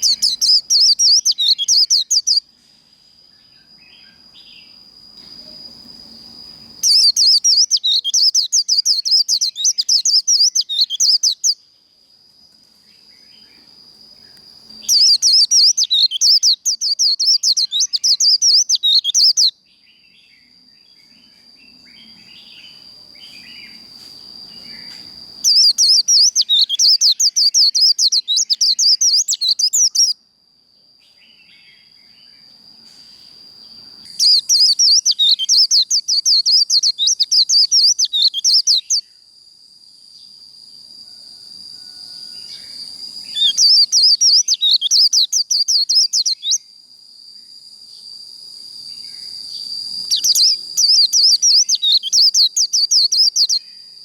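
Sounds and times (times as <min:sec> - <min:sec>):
bird twittering song: 0:00.0 - 0:02.5, 0:06.6 - 0:11.7, 0:12.9 - 0:30.2, 0:31.0 - 0:39.2, 0:42.5 - 0:46.7, 0:49.0 - 0:53.9
high insect trill: 0:00.0 - 0:54.0.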